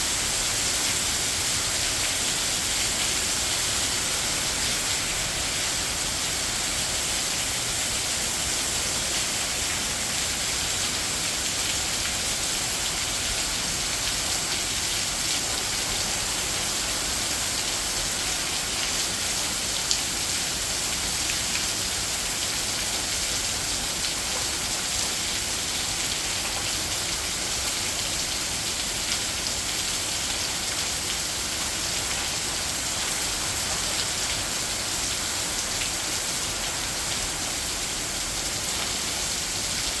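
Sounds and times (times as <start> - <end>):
heavy rain: 0.0 - 40.0.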